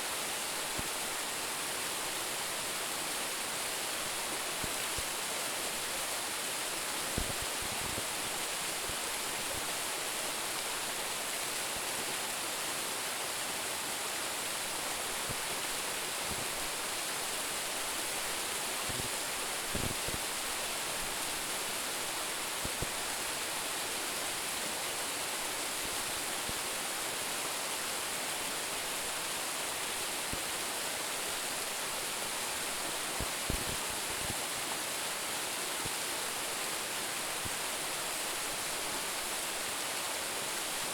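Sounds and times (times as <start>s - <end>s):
waterfall splashing onto rocks: 7.1s - 10.1s.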